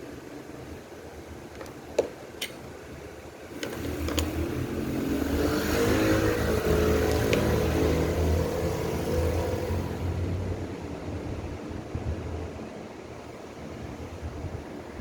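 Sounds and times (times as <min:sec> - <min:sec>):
motor hum rising in pitch: 0:03.7 - 0:10.9.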